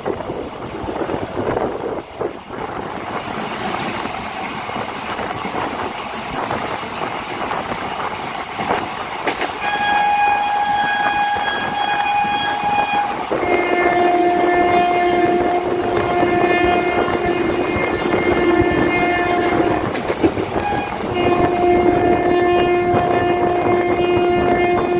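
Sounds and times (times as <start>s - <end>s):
train rumble and rattle: 0.0s - 24.9s
train horn: 9.6s - 24.9s.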